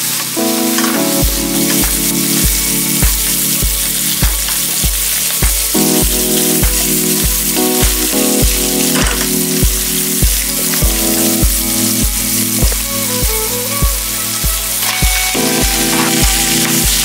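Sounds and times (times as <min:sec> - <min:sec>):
background music with steady beat: 0:00.0 - 0:17.0
food sizzling in hot oil: 0:00.0 - 0:17.0.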